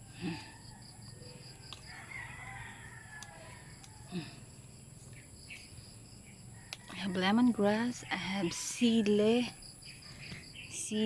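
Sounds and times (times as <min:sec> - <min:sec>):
faint rooster crowing: 0:00.2 - 0:04.5, 0:06.4 - 0:09.2.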